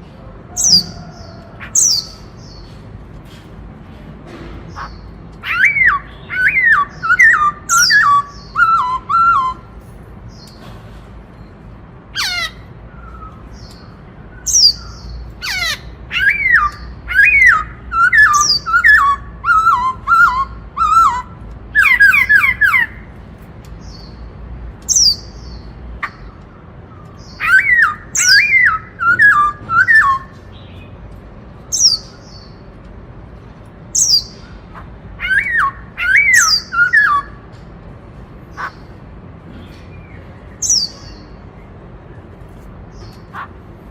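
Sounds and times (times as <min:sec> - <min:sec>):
sharp high bird calls: 0:00.5 - 0:02.8, 0:04.7 - 0:10.5, 0:12.1 - 0:23.1, 0:24.9 - 0:30.8, 0:34.0 - 0:37.5, 0:38.5 - 0:39.0
bird singing whistled notes: 0:05.4 - 0:09.7, 0:16.2 - 0:22.9, 0:27.2 - 0:30.8, 0:35.2 - 0:37.4.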